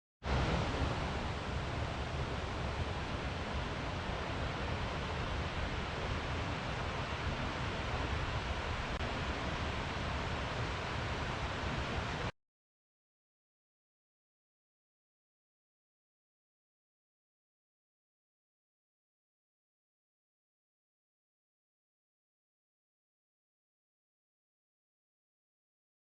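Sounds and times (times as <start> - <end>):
steady rushing noise: 0.2 - 12.3.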